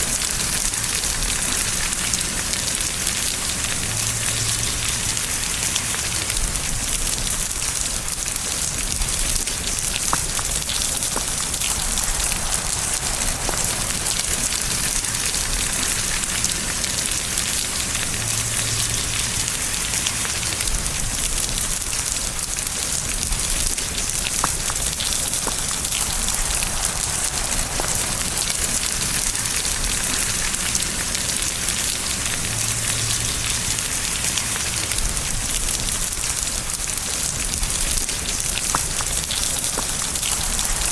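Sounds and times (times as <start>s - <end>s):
steady rain falling: 0.0s - 40.9s
individual raindrop hits: 6.3s - 17.0s, 20.6s - 31.8s, 34.9s - 40.9s.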